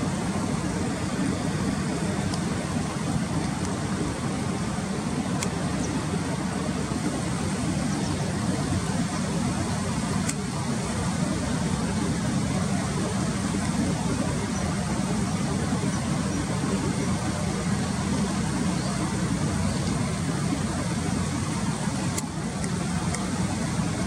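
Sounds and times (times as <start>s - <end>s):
faint clicks: 19.8s - 20.0s.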